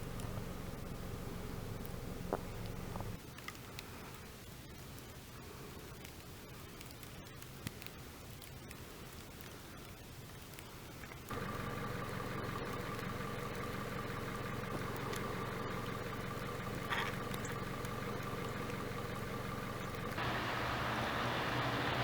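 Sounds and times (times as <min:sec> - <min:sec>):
engine-like hum: 0:00.0 - 0:03.2, 0:11.3 - 0:22.0.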